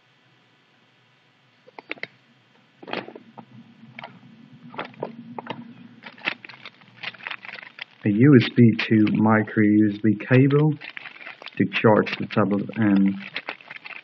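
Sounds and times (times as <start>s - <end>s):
faint low hum: 0.0s - 14.0s
packaging clicks and rustles: 3.9s - 9.2s, 10.2s - 14.0s.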